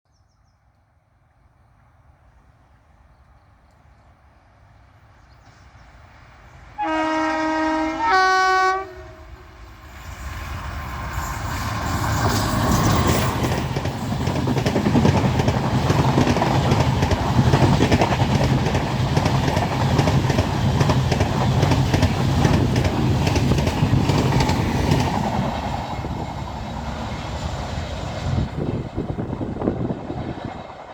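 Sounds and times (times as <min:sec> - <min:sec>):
train rumbling past: 0:01.1 - 0:30.9
train horn blasts: 0:06.8 - 0:09.6.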